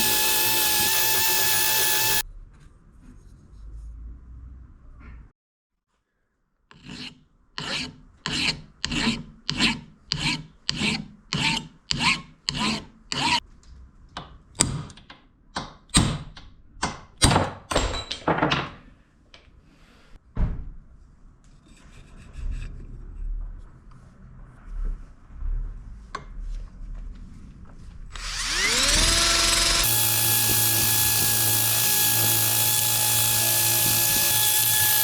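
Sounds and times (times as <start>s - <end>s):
rasping filing strokes on metal: 0.0s - 2.2s, 6.7s - 13.4s, 28.2s - 35.0s.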